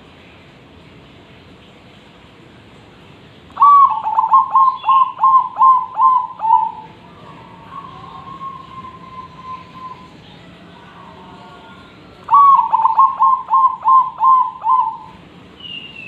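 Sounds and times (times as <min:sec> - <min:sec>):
dove cooing: 0:03.6 - 0:15.2.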